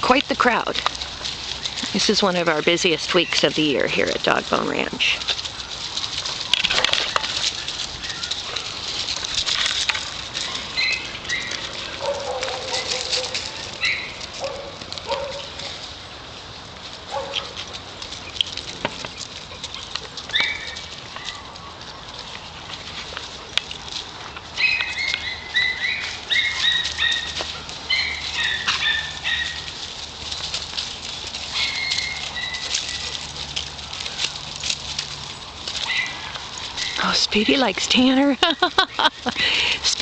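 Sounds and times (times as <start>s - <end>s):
paws scuffling and pattering: 0.0s - 40.0s
dogs' high-pitched calls: 10.3s - 15.8s, 17.1s - 22.3s, 24.5s - 30.6s, 31.3s - 34.7s, 35.7s - 38.2s.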